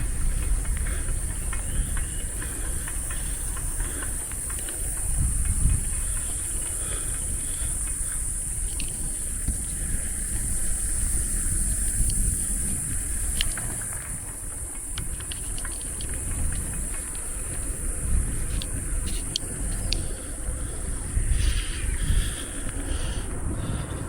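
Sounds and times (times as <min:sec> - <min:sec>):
insects droning: 0:00.0 - 0:24.0
wind rumble on microphone: 0:00.0 - 0:24.0
light clicks and rattles: 0:13.2 - 0:20.7.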